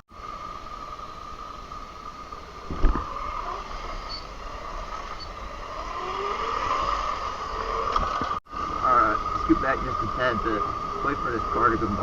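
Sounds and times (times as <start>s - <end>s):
electric dirt bike motor whine: 0.1s - 12.0s
thump: 2.7s - 3.1s.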